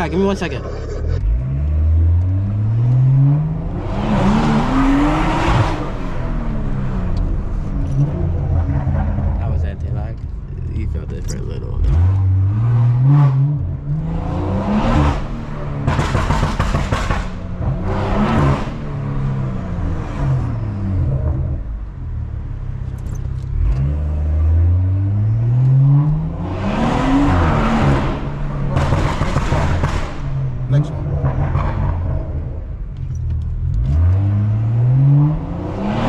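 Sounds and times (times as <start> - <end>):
car engine revving through gears: 0.0 - 21.8, 22.8 - 36.0
exhaust crackle: 15.2 - 22.2.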